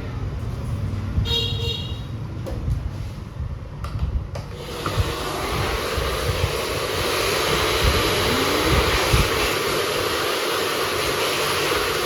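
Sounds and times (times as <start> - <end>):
hot-air dryer blowing: 4.4 - 12.0.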